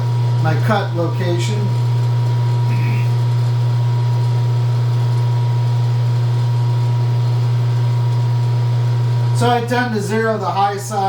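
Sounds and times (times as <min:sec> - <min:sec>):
low electrical motor hum: 0:00.0 - 0:11.0.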